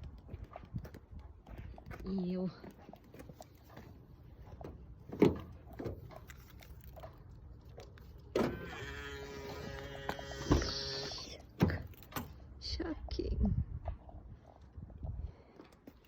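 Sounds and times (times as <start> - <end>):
electric window motor whine: 8.4 - 11.5.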